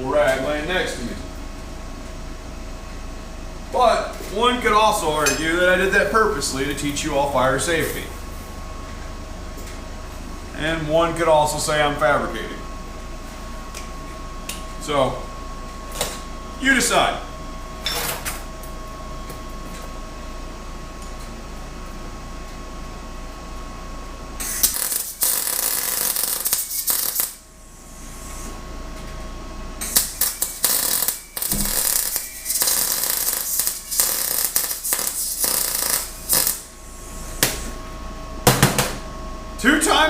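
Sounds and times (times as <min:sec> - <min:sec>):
steady hum with faint whine: 0:00.0 - 0:40.0
welder crackling: 0:24.4 - 0:27.4, 0:29.9 - 0:36.7.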